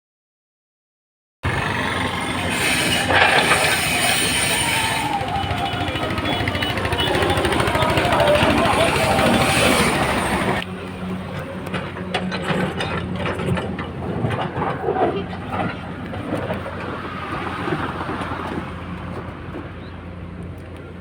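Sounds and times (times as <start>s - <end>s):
loud noise cut off: 1.4s - 10.7s
diesel engine running: 1.4s - 21.0s
clattering knocks: 2.8s - 18.8s.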